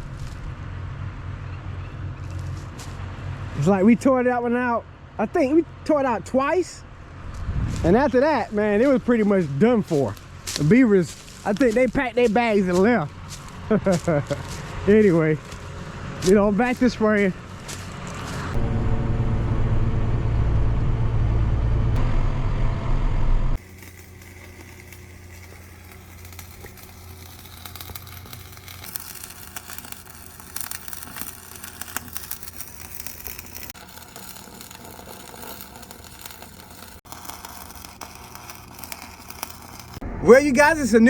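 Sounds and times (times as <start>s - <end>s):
vehicle engine rumbling: 6.8s - 41.0s
quiet low hum with crackling: 23.7s - 40.2s.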